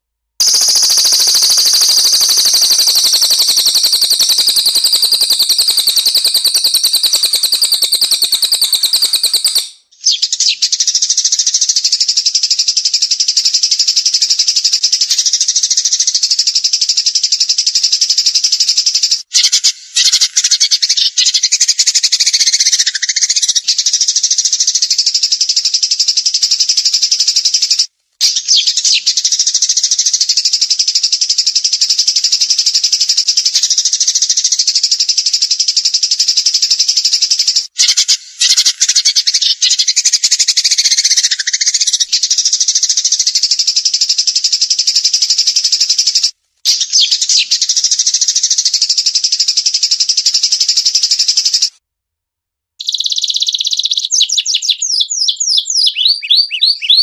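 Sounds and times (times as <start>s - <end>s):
songbird high-pitched trill: 0.4s - 23.9s, 52.8s - 57.0s.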